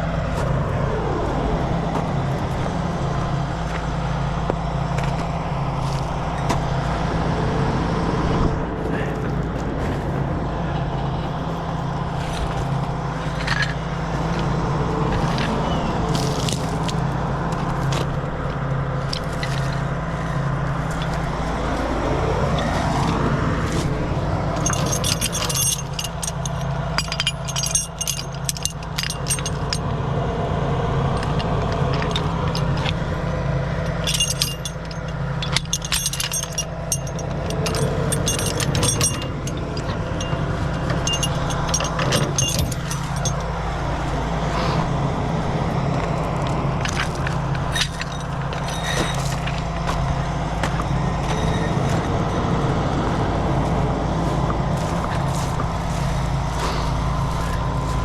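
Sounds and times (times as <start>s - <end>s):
diesel truck engine running: 0.0s - 58.0s
metallic jangling and clinking: 11.4s - 14.5s, 24.5s - 29.9s, 31.1s - 33.0s, 33.9s - 44.2s, 46.8s - 52.0s, 54.8s - 58.0s.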